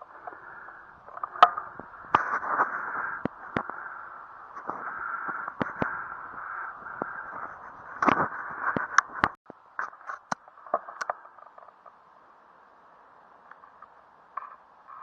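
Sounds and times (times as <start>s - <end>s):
wind gusting over microphone: 0.0s - 9.4s.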